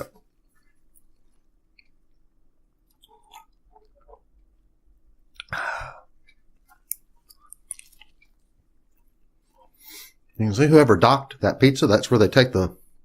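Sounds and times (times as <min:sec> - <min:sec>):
man chewing food: 0:00.0 - 0:10.4.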